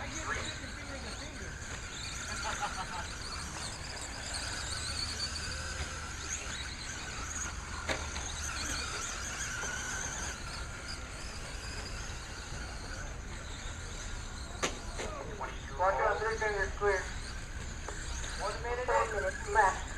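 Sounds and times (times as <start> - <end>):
rc truck motors whining: 0.0 - 19.9.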